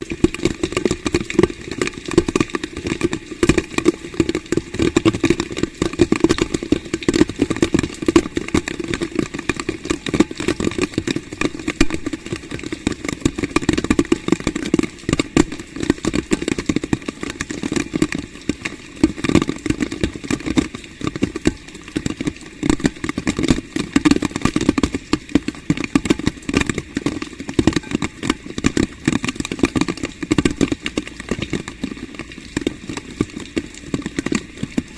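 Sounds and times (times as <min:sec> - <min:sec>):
heavy rain on hard surface: 0:00.0 - 0:34.9.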